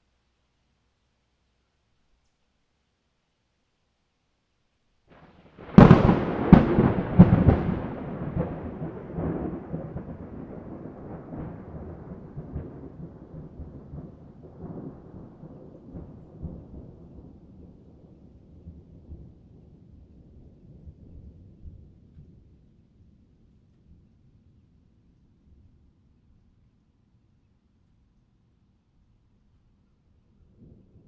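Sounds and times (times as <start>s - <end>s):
thunder cracks and rumble: 5.2s - 22.5s.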